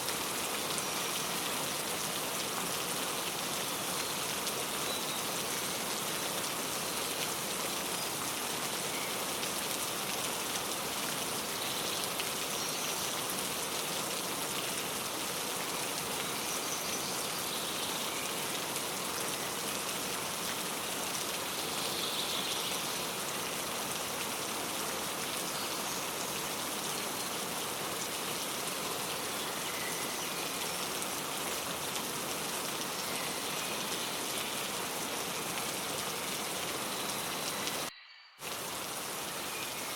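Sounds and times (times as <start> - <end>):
rain pattering: 0.0 - 39.9
faint bird chirps: 36.8 - 38.5.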